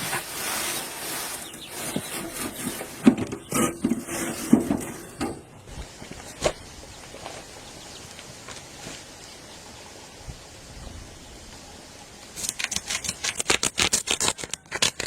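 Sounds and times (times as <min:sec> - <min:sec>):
knocks and clatters: 0:01.9 - 0:05.5.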